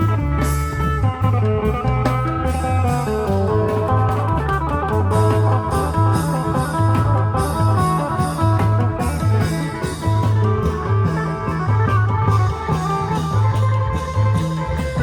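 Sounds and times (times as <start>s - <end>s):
deep bass notes: 0.0s - 15.0s
plucked-string melody: 0.0s - 15.0s
steady drum rhythm: 0.0s - 15.0s.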